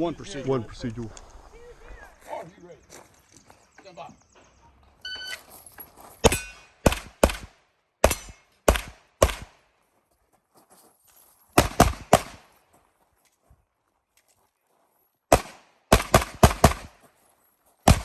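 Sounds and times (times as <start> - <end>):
electronic timer beep: 5.0 - 5.4
pistol shots: 6.2 - 9.6, 11.6 - 12.5, 15.3 - 17.0.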